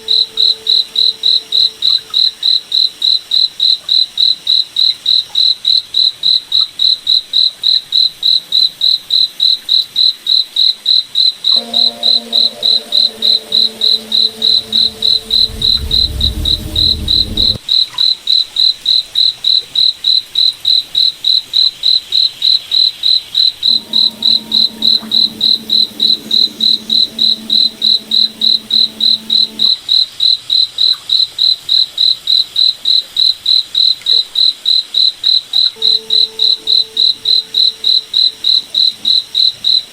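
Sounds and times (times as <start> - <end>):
low rumble: 12.2 - 17.6, 23.7 - 29.7
crickets chirping: 23.6 - 29.8
low steady multi-tone hum: 23.7 - 29.7.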